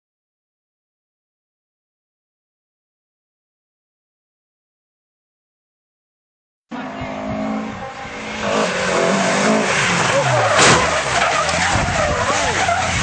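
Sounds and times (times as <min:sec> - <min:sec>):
car engine running: 0:06.7 - 0:13.0
tyres skidding and squealing: 0:06.7 - 0:13.0.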